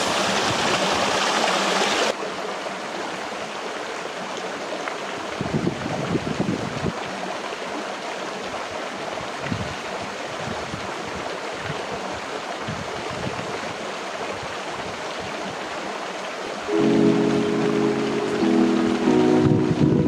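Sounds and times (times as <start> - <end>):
river water flowing over rocks: 0.0 - 5.4.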